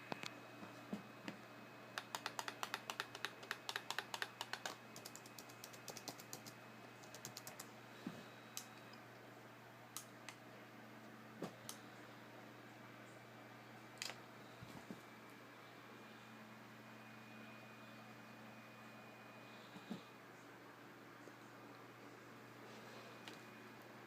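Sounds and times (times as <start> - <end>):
faint low hum: 0.0 - 24.0
laptop keys pressed: 2.0 - 7.7.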